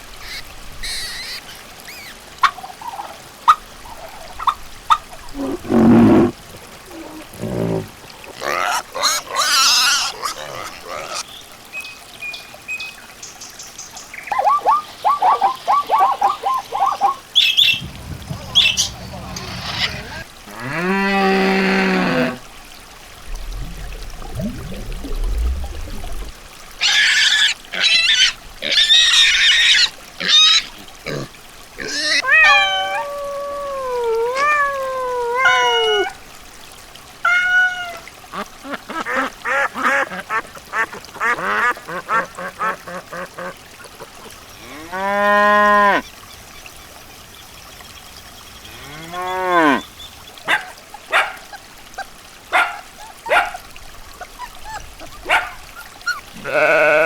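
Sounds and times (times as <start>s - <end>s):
long bending animal calls: 15.1s - 22.4s
arching animal calls: 17.7s - 22.4s
harsh animal calls: 17.7s - 22.4s.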